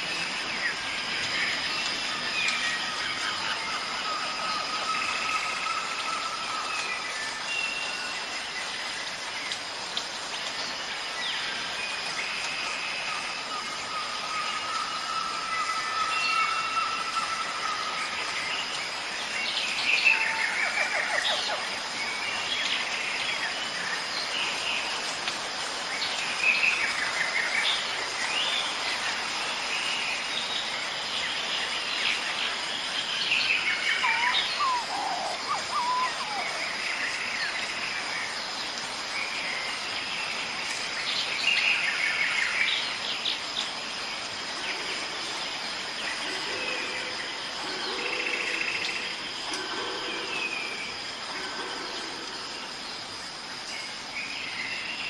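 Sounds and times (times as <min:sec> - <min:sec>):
outdoor ambience hiss: 0:00.0 - 0:55.0
wild birds calling and chirping: 0:09.9 - 0:55.0.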